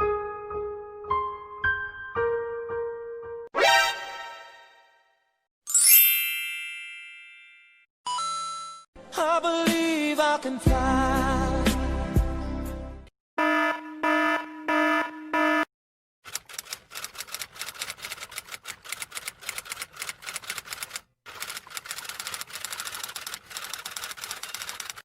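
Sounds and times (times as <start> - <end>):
pulsing electronic alarm tone: 13.4 - 15.7
typewriter keystrokes clattering: 16.3 - 25.0.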